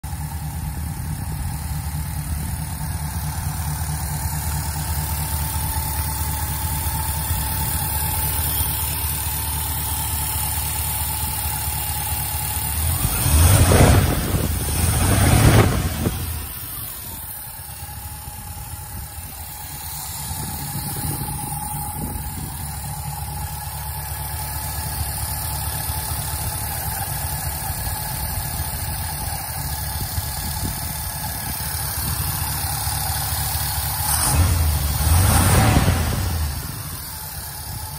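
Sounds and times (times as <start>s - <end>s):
car engine idling: 0.0s - 37.9s
engine revving: 11.2s - 17.6s, 32.0s - 37.9s.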